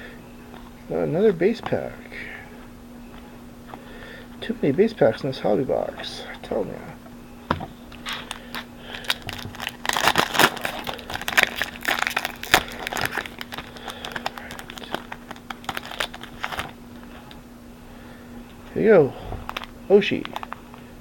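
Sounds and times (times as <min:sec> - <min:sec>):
faint steady hum: 0:00.0 - 0:21.0
foil wrapper tearing and crinkling: 0:08.1 - 0:16.8.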